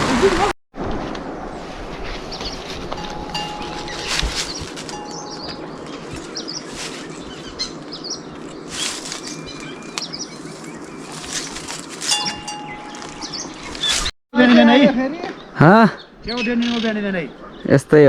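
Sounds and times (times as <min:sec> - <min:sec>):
rustling swishes: 0:00.8 - 0:14.1
small birds chirping: 0:02.3 - 0:14.1, 0:14.7 - 0:18.0.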